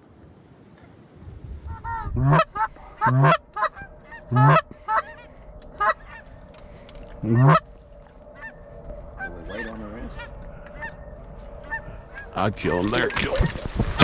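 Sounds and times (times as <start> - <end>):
goose honking: 1.8 - 6.4, 7.1 - 7.7, 8.3 - 8.6, 9.2 - 13.6.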